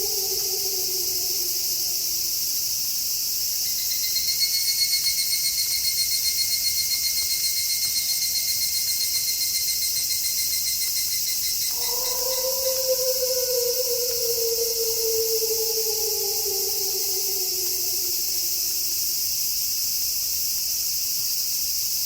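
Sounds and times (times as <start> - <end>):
wolf howling: 0.0 - 2.5, 11.7 - 19.2
cricket trilling: 0.0 - 19.6
night ambience hiss: 0.0 - 22.0.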